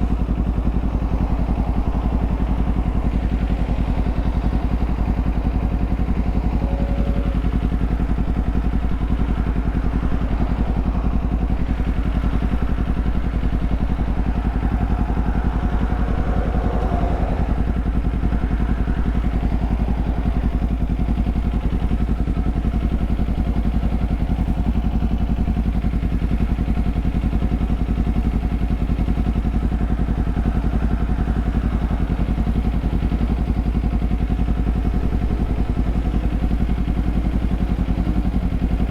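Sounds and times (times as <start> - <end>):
motorcycle engine running steadily: 0.0 - 38.9.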